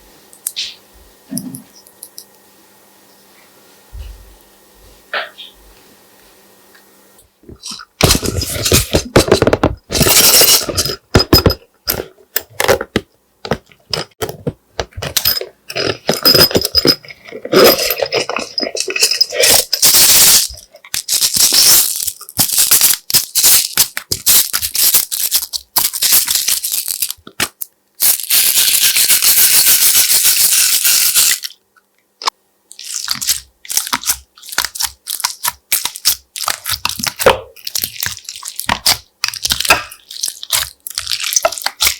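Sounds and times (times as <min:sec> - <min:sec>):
slime crackling and squelching: 0:32.7 - 0:41.9.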